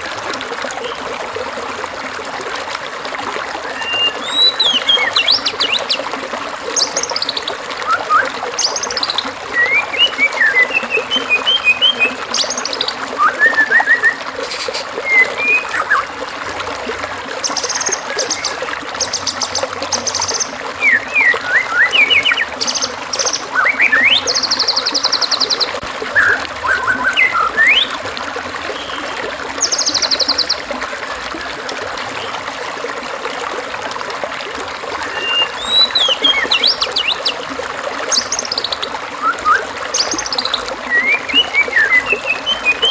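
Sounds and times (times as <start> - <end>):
trickling water: 0.0 - 42.9
songbirds singing: 3.6 - 16.1, 17.4 - 28.0, 28.7 - 30.7, 35.0 - 42.9.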